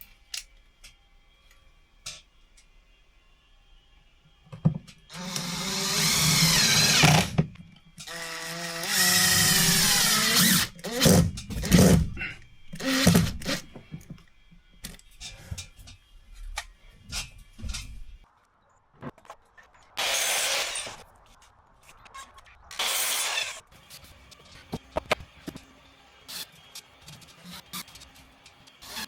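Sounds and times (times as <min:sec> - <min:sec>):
power drill running: 0:04.6 - 0:14.4, 0:20.0 - 0:21.0, 0:22.8 - 0:23.6, 0:24.7 - 0:29.0.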